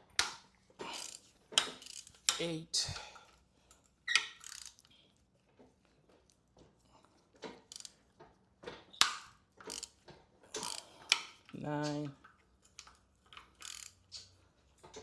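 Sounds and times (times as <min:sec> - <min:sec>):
ratchet and bolts clinking: 0:00.2 - 0:03.0, 0:03.7 - 0:05.0, 0:07.6 - 0:08.0, 0:08.9 - 0:10.0, 0:10.6 - 0:11.6, 0:12.2 - 0:14.3.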